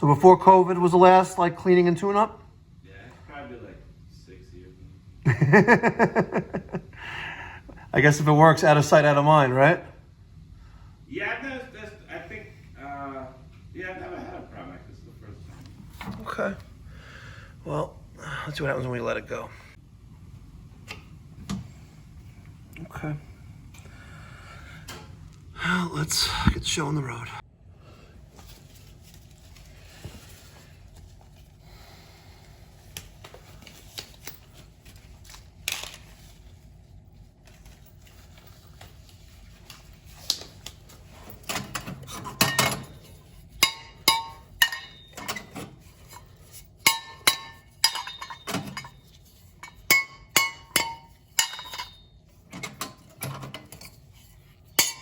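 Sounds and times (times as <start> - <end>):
metal tools clinking and clanking: 41.0 - 55.0.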